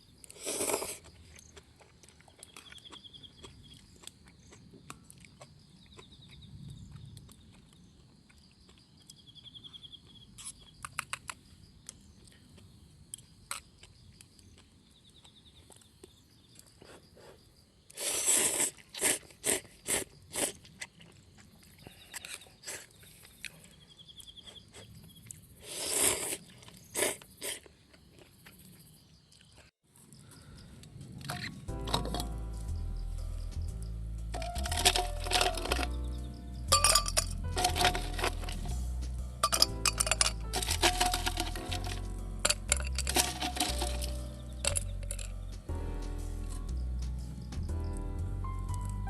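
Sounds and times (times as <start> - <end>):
loud sharp crunching: 34.4 - 45.6.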